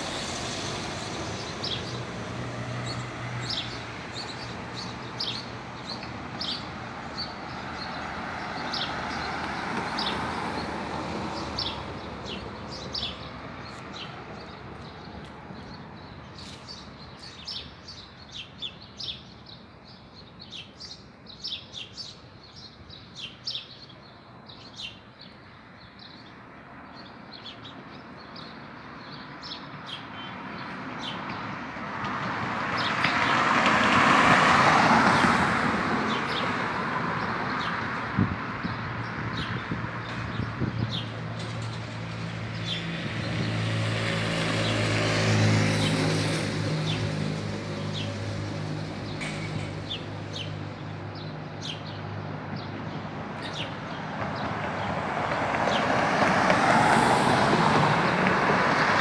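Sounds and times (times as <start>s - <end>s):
car passing: 0.0s - 16.8s, 30.4s - 59.0s
small songbirds chirping: 0.0s - 33.5s, 36.0s - 55.0s.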